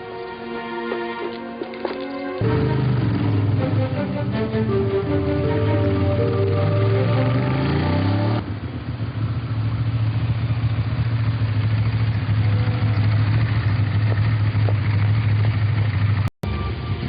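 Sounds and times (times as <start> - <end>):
music: 0.0 - 8.4, 16.4 - 17.0
motorcycle engine idling: 8.4 - 17.0.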